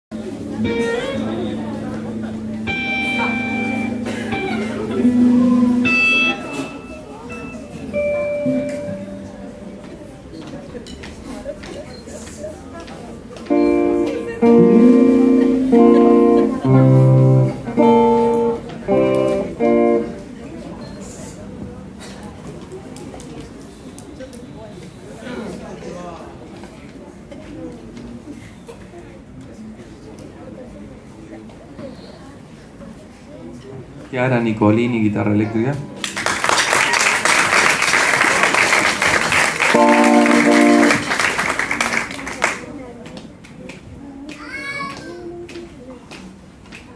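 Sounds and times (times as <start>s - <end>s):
guitar chords: 0.1s - 9.9s, 13.4s - 20.4s, 35.1s - 36.9s, 39.5s - 41.6s
steady instrument note: 35.4s - 36.5s, 39.7s - 41.2s
audience applauding: 36.0s - 42.8s.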